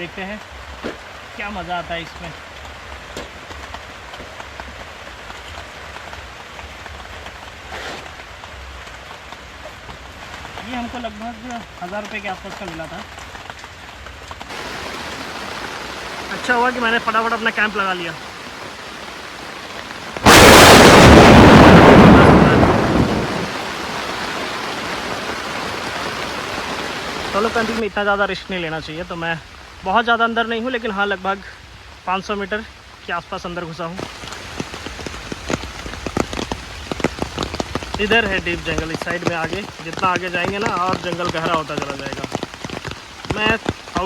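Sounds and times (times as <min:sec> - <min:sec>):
heavy rain falling: 0:00.0 - 0:44.0
thunderclap rumble: 0:14.5 - 0:27.8, 0:34.0 - 0:43.8.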